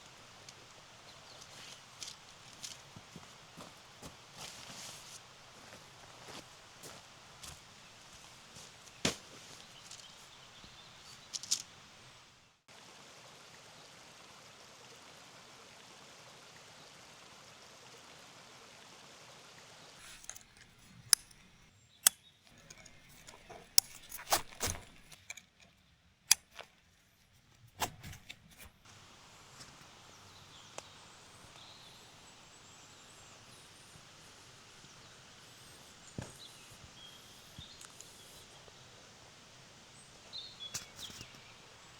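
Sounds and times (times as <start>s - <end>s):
camping gear clicks and knocks: 0.0s - 11.8s, 20.0s - 26.8s, 35.8s - 38.5s, 40.3s - 41.6s
soft outdoor hiss: 0.0s - 41.9s.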